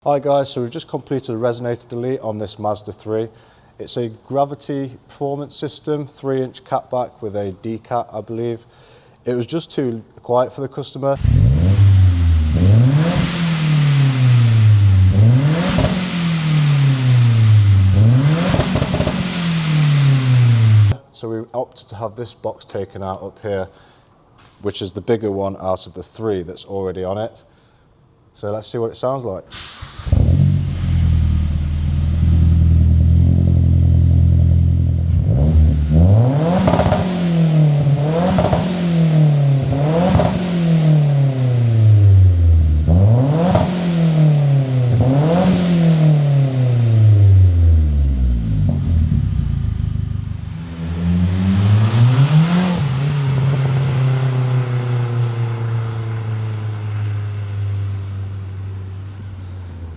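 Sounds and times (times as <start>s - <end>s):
car engine idling and revving: 11.2s - 21.0s, 29.6s - 59.9s.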